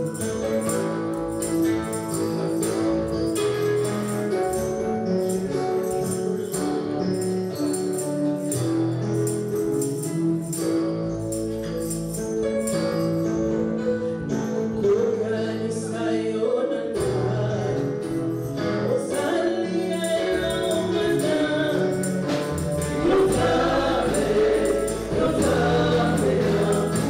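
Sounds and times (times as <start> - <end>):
steady percussion beat: 20.0 - 27.0
voices singing held notes: 20.0 - 27.0.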